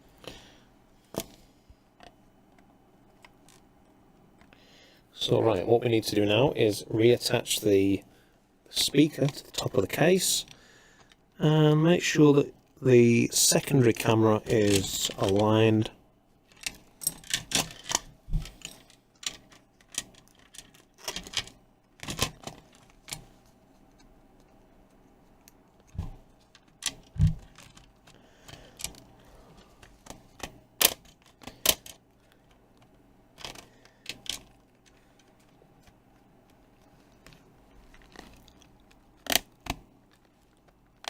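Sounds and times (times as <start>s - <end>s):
plastic and metal parts clicking: 16.5s - 23.3s, 25.4s - 36.0s, 37.2s - 41.0s.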